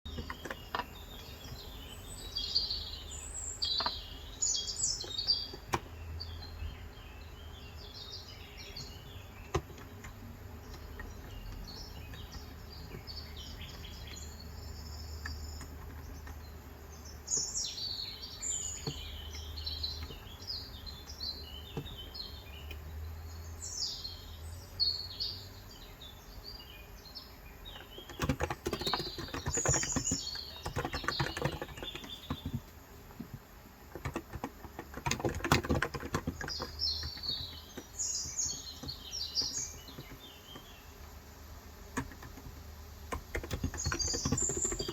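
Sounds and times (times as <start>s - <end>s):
small birds chirping: 0.0s - 44.9s
rapid typing on keyboard: 8.6s - 16.5s, 27.7s - 40.7s, 41.8s - 44.9s.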